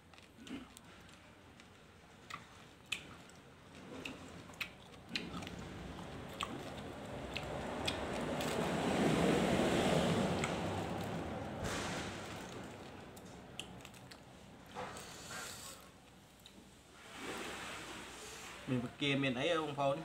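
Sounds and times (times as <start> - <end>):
person chewing crunchy salad: 0.0 - 11.4, 12.6 - 14.3.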